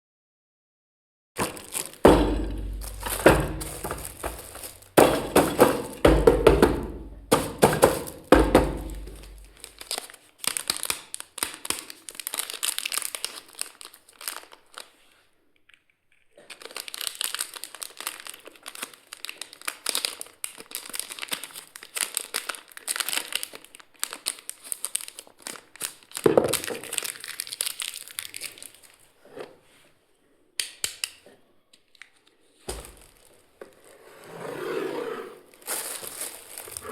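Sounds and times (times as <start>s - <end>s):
plastic packaging crinkling and tearing: 1.4s - 6.0s, 7.1s - 15.3s, 16.2s - 29.2s, 31.9s - 33.9s, 35.5s - 36.9s
toy pieces knocking: 1.4s - 9.6s.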